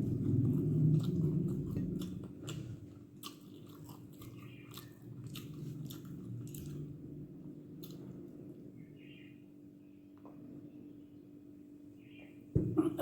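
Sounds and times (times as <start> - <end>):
close chewing and biting: 0.0 - 7.0.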